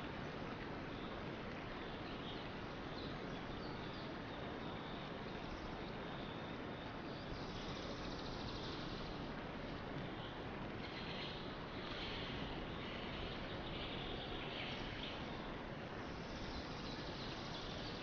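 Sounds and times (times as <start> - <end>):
steady outdoor hiss: 0.0 - 18.0
faint bird chirps and trills: 0.1 - 9.4, 10.0 - 18.0.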